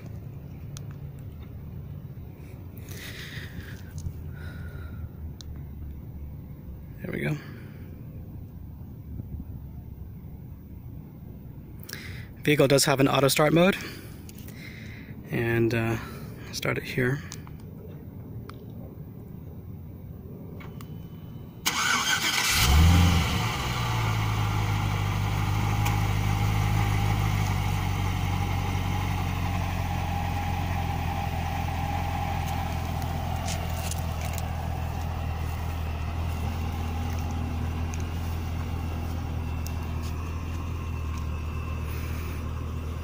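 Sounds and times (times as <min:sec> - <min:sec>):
car starter cranking: 0:21.6 - 0:26.3
car engine revving and idling: 0:21.7 - 0:43.0.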